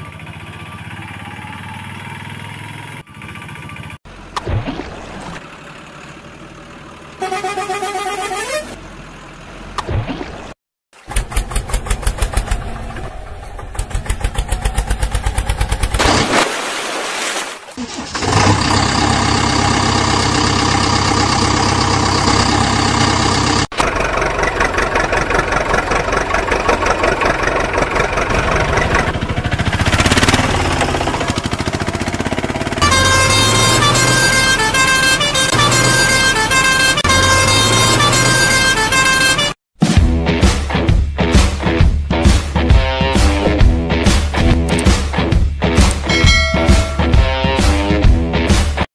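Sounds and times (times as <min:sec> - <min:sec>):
truck engine: 0:00.0 - 0:16.5, 0:17.7 - 0:39.6, 0:42.6 - 0:48.6
truck horn tones: 0:07.1 - 0:08.9, 0:32.6 - 0:39.6.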